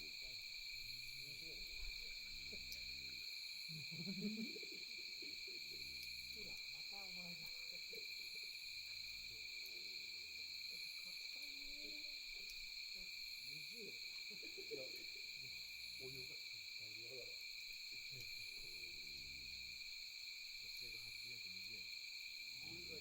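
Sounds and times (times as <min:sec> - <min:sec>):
distant voices murmuring: 0:00.0 - 0:17.4
insects chirping: 0:00.0 - 0:23.0.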